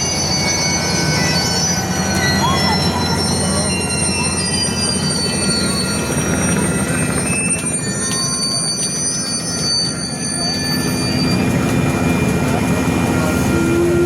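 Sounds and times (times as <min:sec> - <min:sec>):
high ringing tones: 0:00.0 - 0:14.0
train wheels rumbling on rail: 0:00.0 - 0:14.0.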